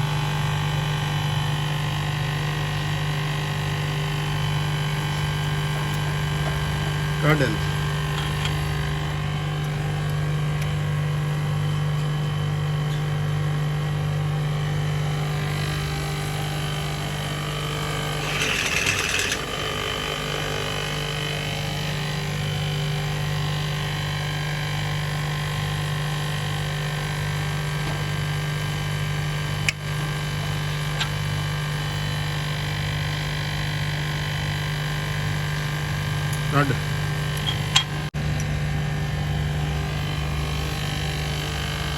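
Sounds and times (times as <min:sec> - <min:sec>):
electric motor humming: 0:02.4 - 0:23.2, 0:34.8 - 0:41.9.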